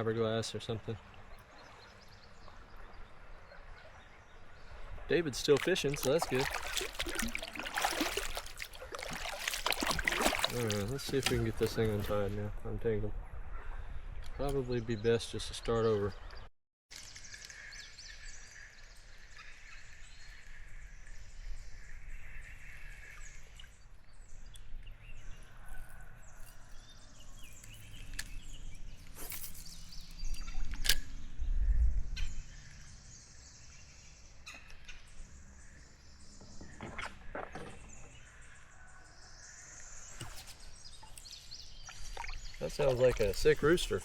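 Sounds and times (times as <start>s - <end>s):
bird calls: 0.8s - 12.2s, 13.2s - 44.0s
river flowing: 5.5s - 11.4s.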